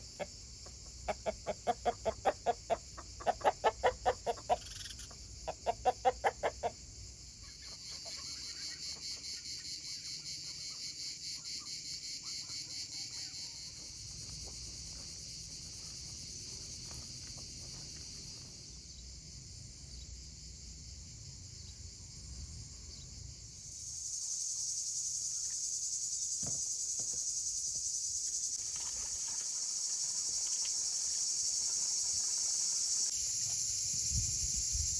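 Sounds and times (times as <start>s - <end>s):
insects chirring: 0.0s - 34.9s
chickens clucking: 0.1s - 6.8s.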